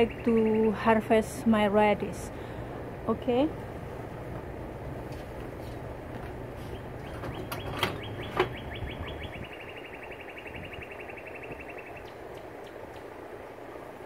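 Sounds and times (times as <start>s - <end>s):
small bird trilling: 6.7s - 13.0s
wind on microphone: 7.4s - 9.6s, 10.4s - 13.0s.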